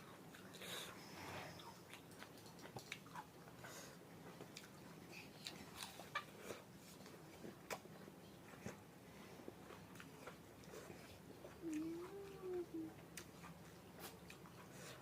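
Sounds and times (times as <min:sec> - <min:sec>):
chewing with wet mouth clicks: 0:01.6 - 0:03.7, 0:04.3 - 0:06.3, 0:09.6 - 0:12.1, 0:13.0 - 0:15.0.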